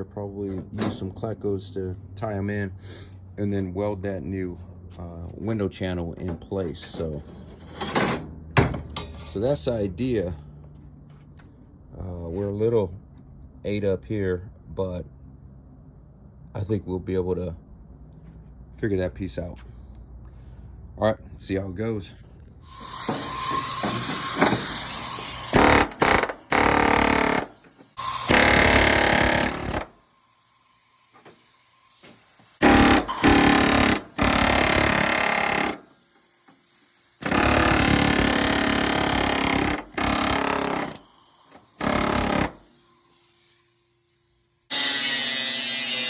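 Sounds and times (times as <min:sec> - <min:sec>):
power tool cutting metal: 0:22.6 - 0:31.1, 0:32.6 - 0:35.9, 0:36.8 - 0:43.8, 0:44.7 - 0:46.0.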